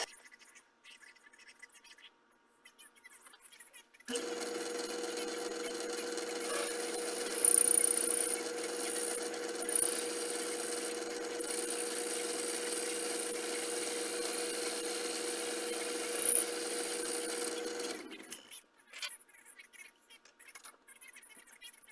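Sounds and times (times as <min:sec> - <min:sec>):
high-pitched cutting squeals: 0:04.1 - 0:18.4
machine tool cutting metal: 0:04.1 - 0:18.6.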